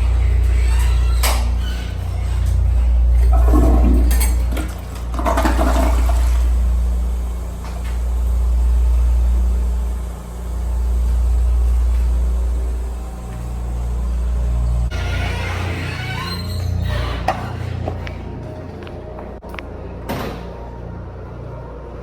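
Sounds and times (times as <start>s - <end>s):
toilet flushing: 1.6s - 18.2s.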